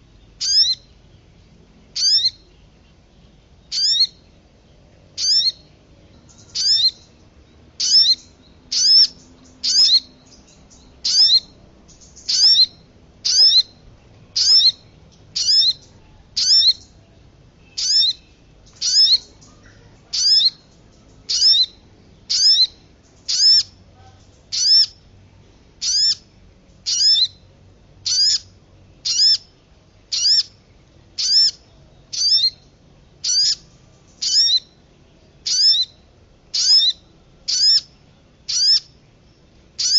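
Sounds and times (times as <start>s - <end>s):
high downward-sliding bird call: 0.4s - 1.0s, 2.0s - 2.5s, 3.7s - 4.3s, 5.2s - 5.7s, 6.3s - 7.1s, 7.8s - 13.8s, 14.4s - 17.0s, 17.6s - 20.7s, 21.3s - 23.8s, 24.5s - 25.0s, 25.8s - 26.2s, 26.9s - 27.4s, 28.0s - 29.5s, 30.1s - 30.6s, 31.2s - 34.8s, 35.4s - 37.9s, 38.5s - 38.9s.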